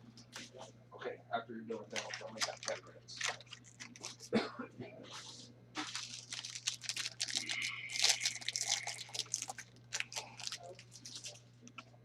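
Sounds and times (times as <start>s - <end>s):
low electrical hum: 0.0s - 12.0s
card packs crinkling: 1.8s - 4.3s, 5.8s - 11.9s.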